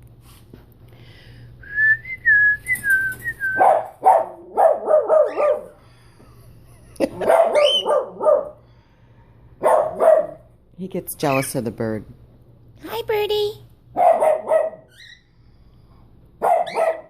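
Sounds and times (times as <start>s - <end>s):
dog barking: 3.6s - 5.8s, 7.2s - 8.6s, 9.6s - 10.5s, 14.0s - 14.9s, 16.4s - 17.0s.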